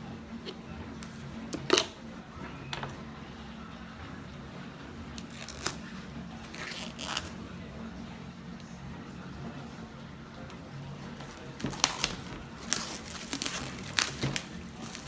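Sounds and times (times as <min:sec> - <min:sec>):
cardboard packaging rustling: 0:05.2 - 0:07.4, 0:11.2 - 0:15.0.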